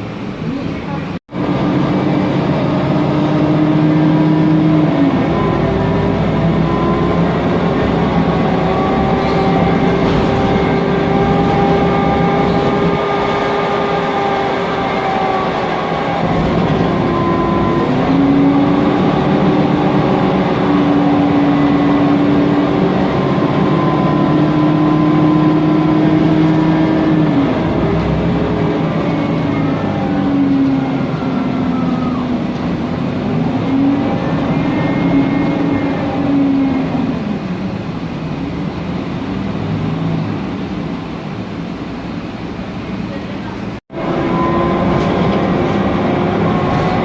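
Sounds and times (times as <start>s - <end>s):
bus engine running: 0.0s - 47.0s
constant hum: 0.0s - 47.0s
cooling fan noise: 0.0s - 47.0s
gearbox whine: 1.4s - 38.6s.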